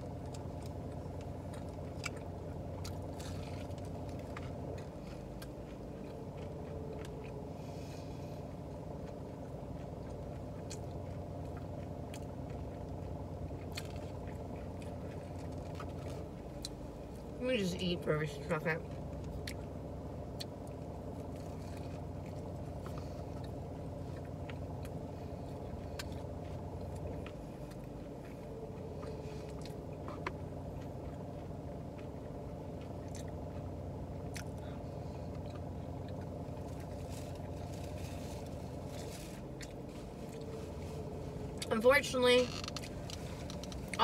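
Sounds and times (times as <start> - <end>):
low hum inside car: 0.0 - 44.0
chewing mouth clicks: 8.8 - 16.8, 20.3 - 37.2.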